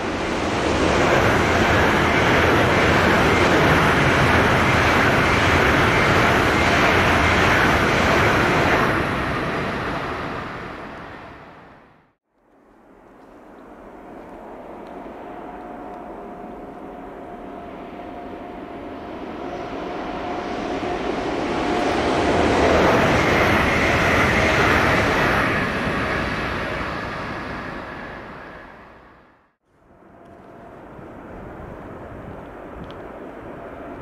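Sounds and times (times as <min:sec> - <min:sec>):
train wheels rolling on rails: 0:00.0 - 0:11.6.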